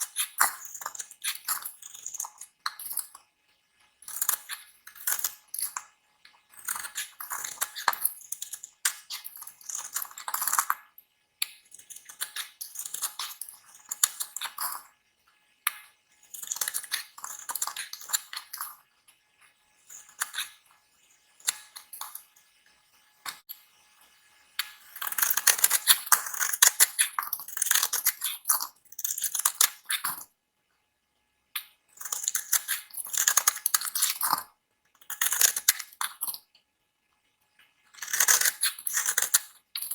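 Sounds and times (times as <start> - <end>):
knife scraping bar soap: 0.0 - 3.2, 4.0 - 5.9, 6.5 - 10.9, 11.5 - 14.9, 16.2 - 18.8, 19.9 - 20.6, 24.7 - 30.3, 32.0 - 36.5, 37.9 - 39.9.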